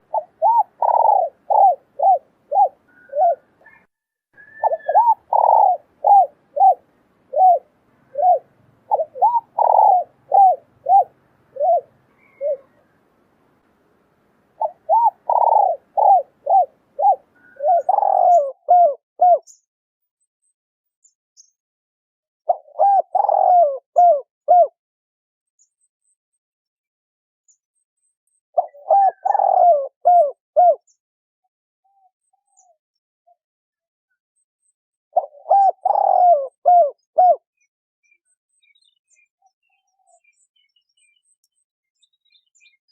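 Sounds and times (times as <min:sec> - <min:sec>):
dove cooing: 0:00.0 - 0:13.0, 0:14.6 - 0:19.4, 0:22.5 - 0:24.7, 0:28.6 - 0:30.8, 0:35.2 - 0:37.4.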